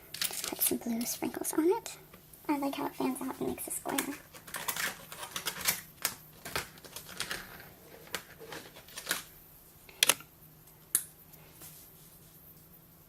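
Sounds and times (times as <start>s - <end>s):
plastic pieces clicking on table: 3.9s - 9.3s.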